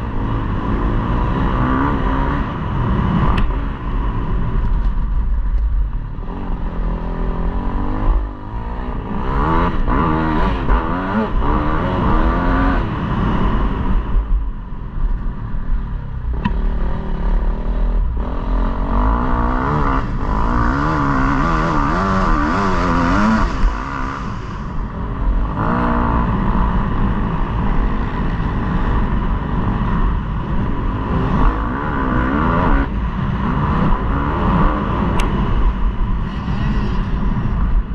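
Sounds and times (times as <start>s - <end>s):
motocross bike engine revving: 6.2s - 13.7s, 16.4s - 27.2s.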